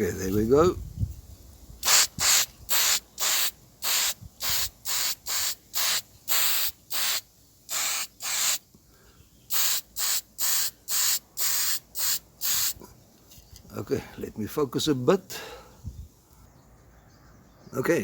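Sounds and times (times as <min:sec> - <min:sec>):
spray paint hissing: 0:01.8 - 0:08.6, 0:09.5 - 0:12.8.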